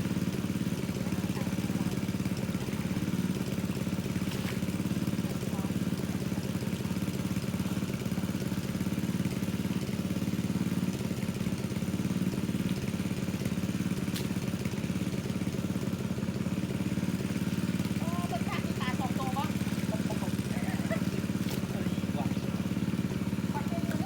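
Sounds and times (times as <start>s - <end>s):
water pump engine running: 0.0s - 24.0s.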